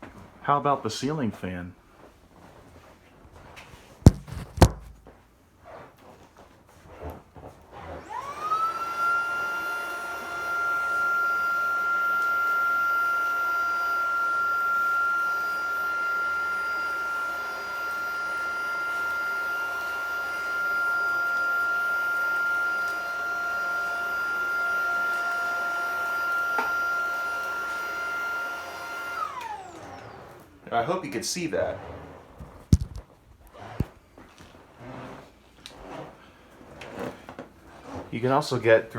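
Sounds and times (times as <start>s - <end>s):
vacuum motor whining: 7.8s - 36.0s.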